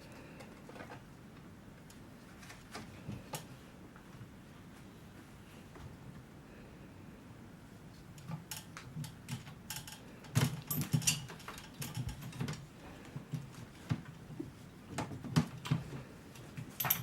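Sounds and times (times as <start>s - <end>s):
hangers clicking and rattling: 8.2s - 12.7s, 15.4s - 17.0s.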